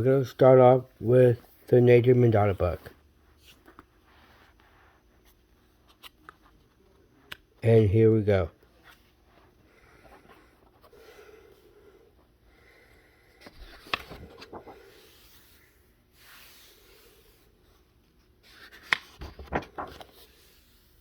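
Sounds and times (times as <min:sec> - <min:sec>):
paper pages rustling: 0:13.4 - 0:15.6, 0:18.4 - 0:20.9.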